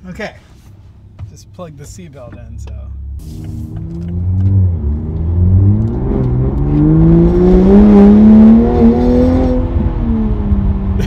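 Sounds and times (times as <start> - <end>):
loud car engine accelerating: 3.1 - 11.0.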